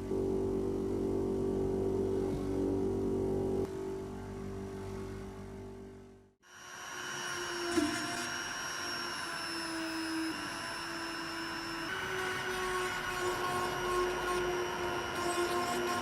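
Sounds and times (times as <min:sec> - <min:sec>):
power tool motor whining: 0:06.9 - 0:16.0.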